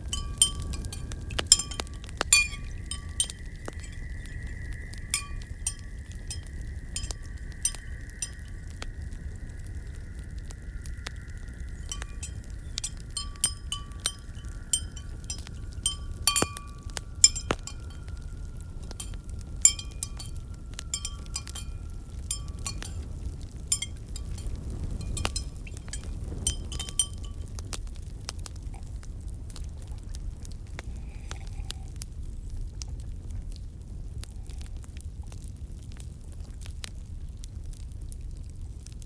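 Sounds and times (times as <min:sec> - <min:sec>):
glass clinking: 0:00.0 - 0:08.8, 0:11.8 - 0:27.6
fireplace rumble: 0:00.0 - 0:39.0.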